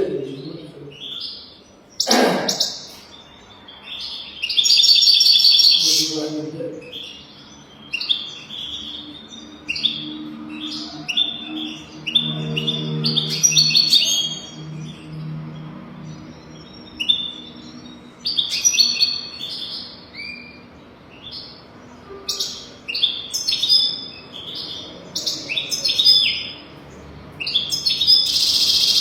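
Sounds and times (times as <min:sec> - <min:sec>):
goldfinch singing: 0:27.4 - 0:29.0.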